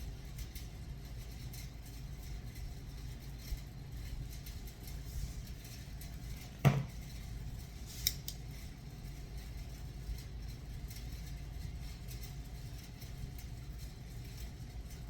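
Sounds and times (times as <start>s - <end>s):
sharp knock of kitchenware: 6.6s - 6.9s.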